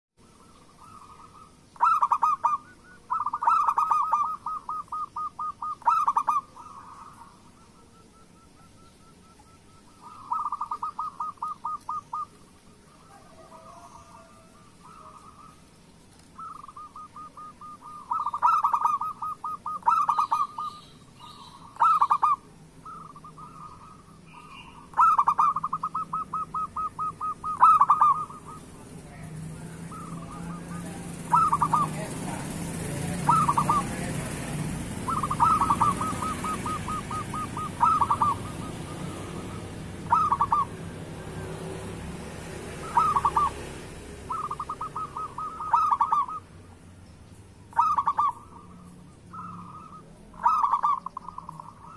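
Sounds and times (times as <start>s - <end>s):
dove cooing: 0.3s - 46.6s, 47.7s - 51.9s.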